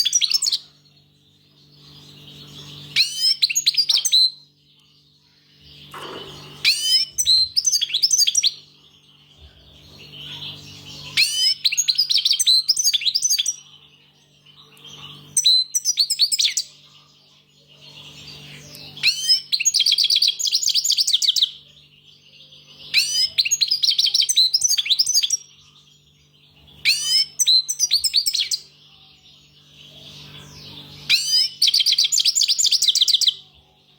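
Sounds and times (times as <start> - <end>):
steady low hum: 0.0 - 31.6
goldfinch twittering: 5.8 - 9.0.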